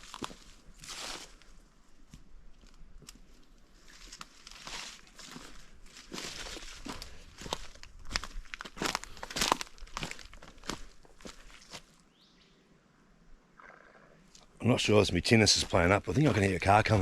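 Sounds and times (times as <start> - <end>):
footsteps crunching on forest track: 0.0 - 12.0, 15.5 - 17.0.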